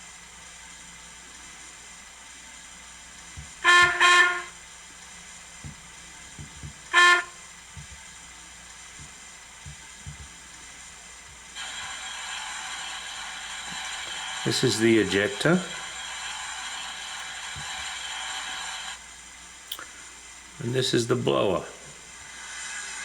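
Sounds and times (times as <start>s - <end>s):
steady steam hiss: 0.0s - 23.0s
steam locomotive whistle blasts: 3.6s - 4.6s, 6.9s - 7.5s.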